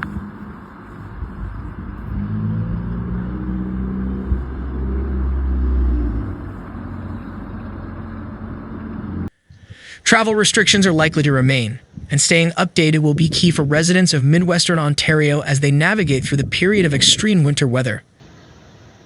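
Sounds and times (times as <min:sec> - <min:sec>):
vehicle engine running: 0:00.0 - 0:09.4
road noise: 0:00.0 - 0:19.0.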